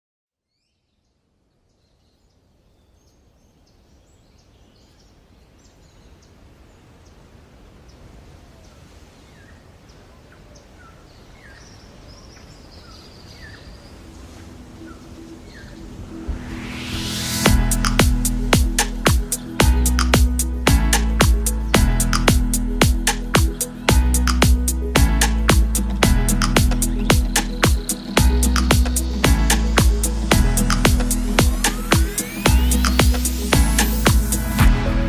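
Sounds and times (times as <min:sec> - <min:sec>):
rising whoosh: 0:14.6 - 0:35.0
small birds chirping: 0:23.3 - 0:34.4.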